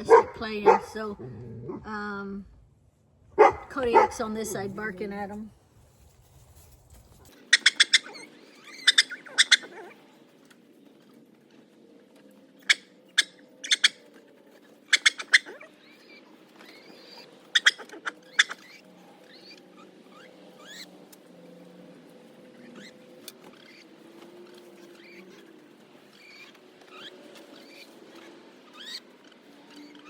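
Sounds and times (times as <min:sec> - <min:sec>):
chickens calling: 0:00.0 - 0:01.2, 0:03.4 - 0:04.8.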